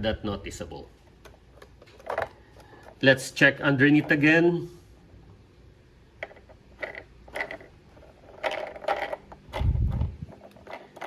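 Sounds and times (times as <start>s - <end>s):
plastic toy clicks and rattles: 6.2s - 11.0s.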